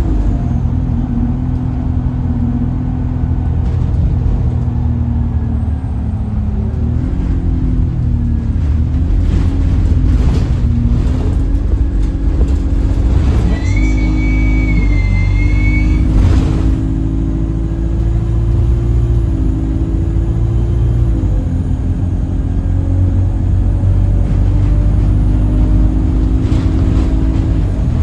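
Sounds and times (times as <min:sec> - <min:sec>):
bus engine rumble: 0:00.0 - 0:28.0
horn-like droning tone: 0:13.4 - 0:16.4
thin high whistle-like tone: 0:13.5 - 0:16.1.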